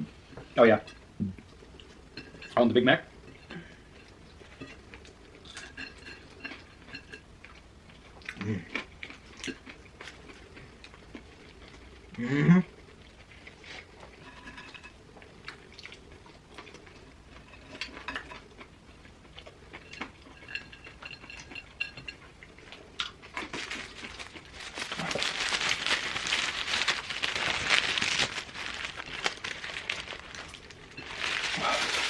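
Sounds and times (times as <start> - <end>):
food wrapper crinkling: 23.3 - 32.0.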